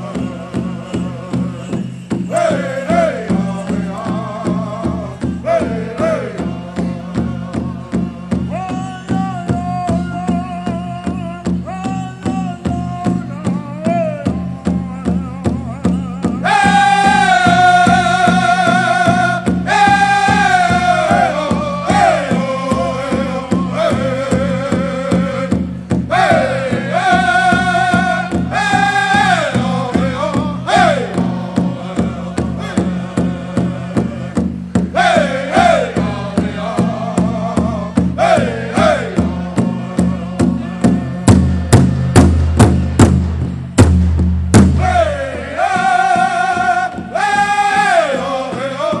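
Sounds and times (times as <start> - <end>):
big drum beating: 0.0 - 49.0
singers chanting high phrases: 2.3 - 41.3, 44.8 - 49.0.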